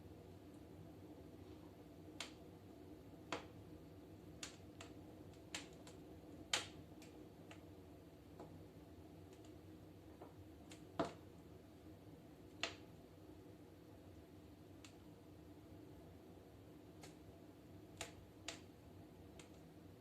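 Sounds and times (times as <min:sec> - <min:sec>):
firewood crackling and popping: 0:02.0 - 0:11.5, 0:12.4 - 0:13.1, 0:16.6 - 0:19.8.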